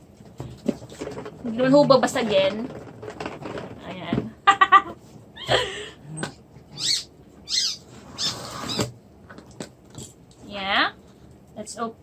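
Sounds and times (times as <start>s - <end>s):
puppy whining: 5.4s - 8.9s.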